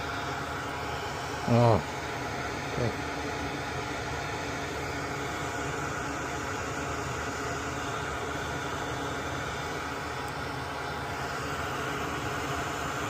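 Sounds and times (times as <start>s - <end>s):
electric fan machine humming: 0.0s - 13.0s.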